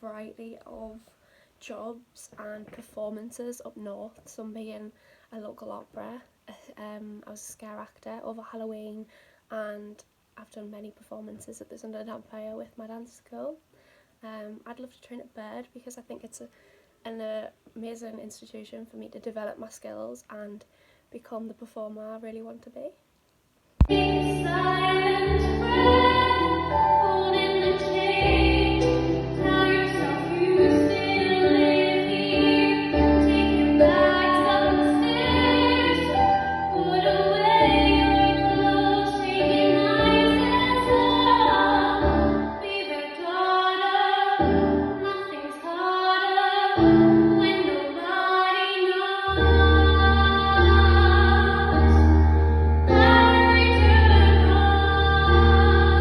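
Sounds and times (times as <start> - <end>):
woman singing: 23.8 - 52.2, 52.9 - 56.0.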